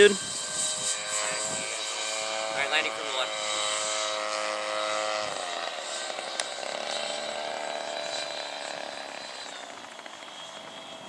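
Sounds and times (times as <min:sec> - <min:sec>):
electric fan motors whining: 0:00.0 - 0:11.0.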